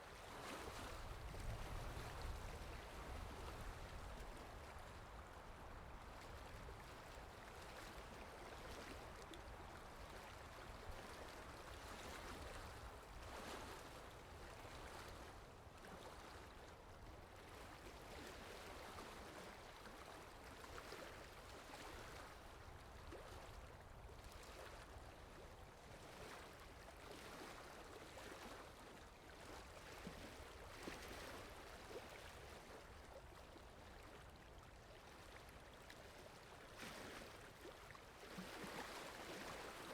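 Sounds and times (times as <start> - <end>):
rushing river water: 0.1 - 39.9.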